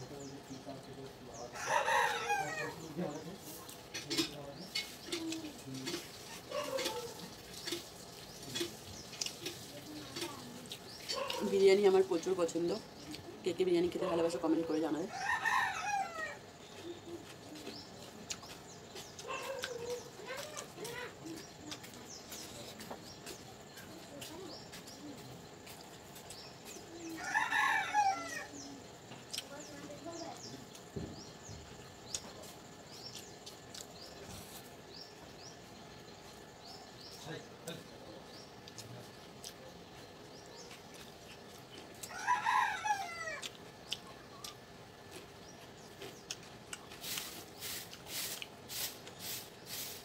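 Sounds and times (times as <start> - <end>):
birds chirping: 0.0 - 50.0
person chewing: 8.6 - 9.7, 16.7 - 23.4, 32.0 - 34.6, 38.6 - 42.2, 43.4 - 49.2.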